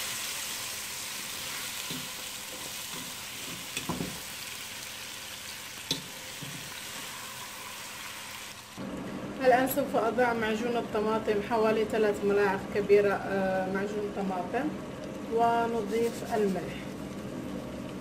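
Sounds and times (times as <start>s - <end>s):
food sizzling in a pot: 0.0s - 8.8s, 15.3s - 18.0s
spatula stirring: 15.7s - 18.0s.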